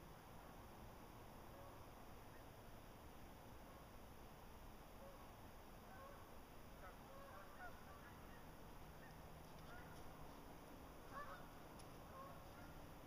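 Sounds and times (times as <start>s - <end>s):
background hiss: 0.0s - 13.0s
distant birds calling: 5.0s - 13.0s.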